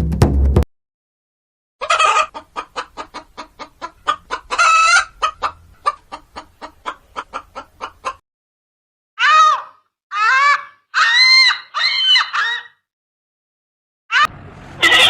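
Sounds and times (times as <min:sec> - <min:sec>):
hen cackling: 0:01.8 - 0:08.2, 0:09.2 - 0:12.8, 0:14.1 - 0:15.0.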